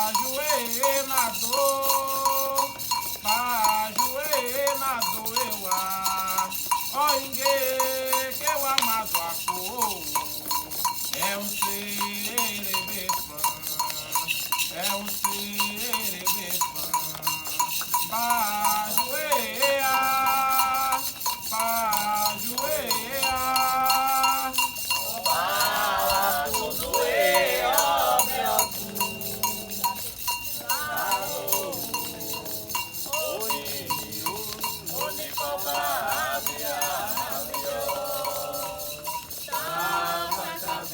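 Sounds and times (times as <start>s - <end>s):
metal bell struck rhythmically: 0.0s - 40.9s
voices chanting: 0.0s - 40.9s.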